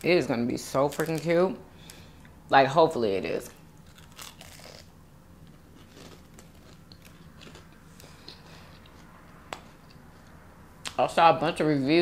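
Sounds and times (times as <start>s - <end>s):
chewing food: 5.4s - 9.2s.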